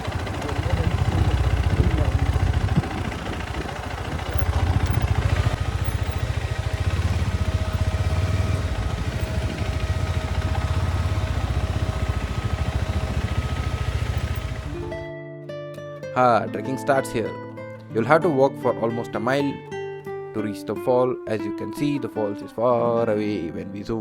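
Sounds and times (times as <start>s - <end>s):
motorcycle engine running: 0.0s - 15.1s.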